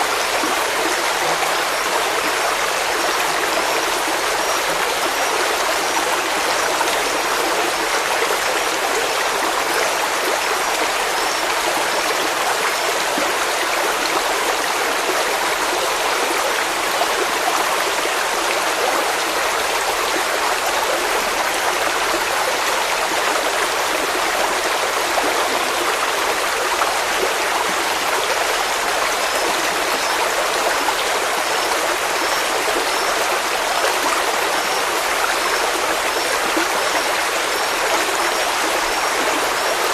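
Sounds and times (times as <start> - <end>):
stream of running water: 0.0 - 39.9.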